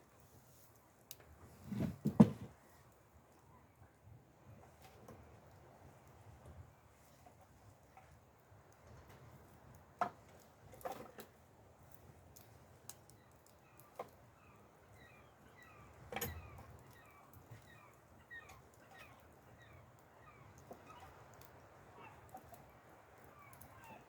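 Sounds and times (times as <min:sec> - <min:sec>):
wood campfire crackling: 0:00.0 - 0:24.0.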